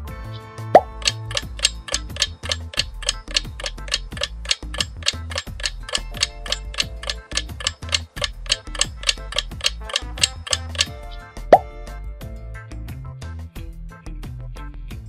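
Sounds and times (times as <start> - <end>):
low bass background music: 0.0 - 15.0
countdown timer ticking: 0.8 - 11.8.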